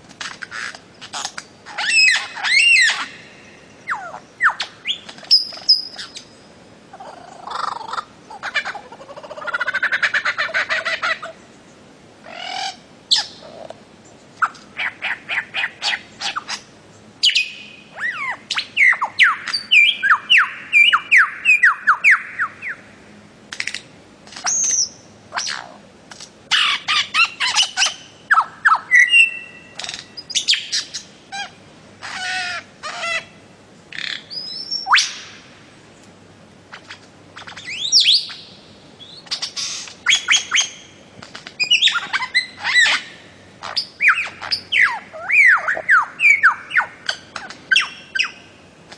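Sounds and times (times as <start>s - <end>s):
bird calling sharp notes: 0.5s - 6.3s, 26.5s - 35.4s, 41.6s - 48.5s.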